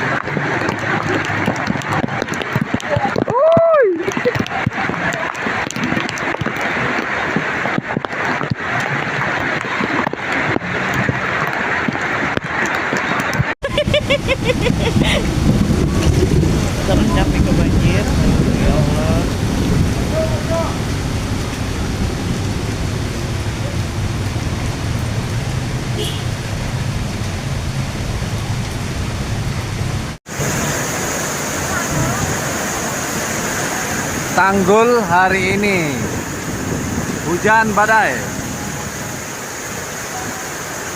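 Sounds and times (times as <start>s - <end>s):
heavy rain and floodwater rushing: 0.0s - 40.9s
sharp water splashes: 0.0s - 40.9s
deep rumble: 13.7s - 30.7s.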